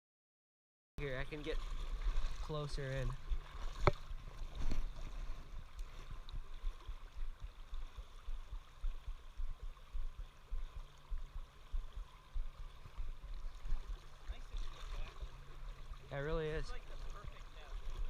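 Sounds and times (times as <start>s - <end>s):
faint ticks: 5.7s - 13.5s.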